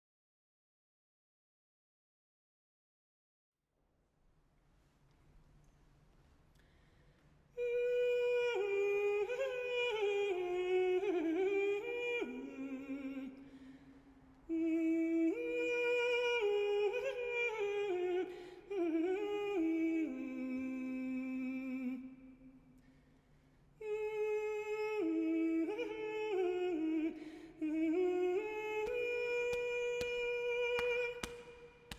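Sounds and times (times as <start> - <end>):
person singing wordless melody: 7.6 - 13.8, 14.4 - 22.5, 23.8 - 31.9.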